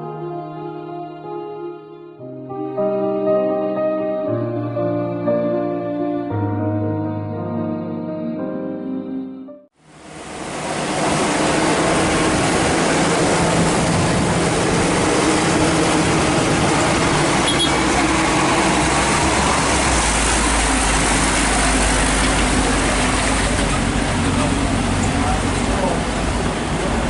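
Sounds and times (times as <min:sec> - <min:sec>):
road noise: 0:09.8 - 0:27.0
vehicle engine running: 0:09.9 - 0:27.0.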